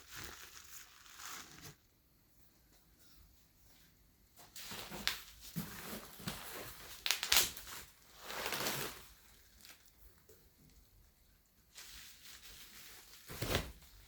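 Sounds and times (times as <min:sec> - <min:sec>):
packaging crinkling: 0:06.3 - 0:09.9.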